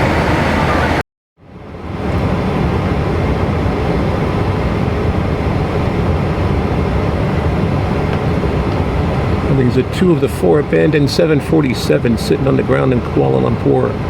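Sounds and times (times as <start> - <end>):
air-conditioning rush: 0.0 - 14.0
jet engines running: 0.0 - 14.0.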